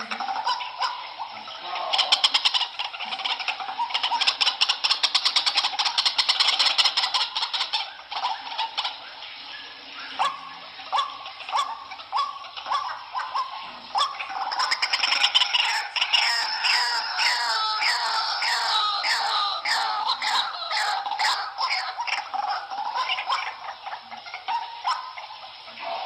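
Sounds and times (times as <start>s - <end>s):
bird calling in rapid pulses: 0.0s - 26.0s.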